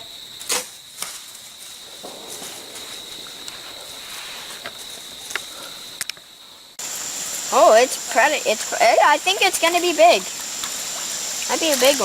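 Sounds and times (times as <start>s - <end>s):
high-pitched insect drone: 1.6s - 12.0s
faint clicks: 4.5s - 6.3s
soft rushing water: 6.8s - 12.0s.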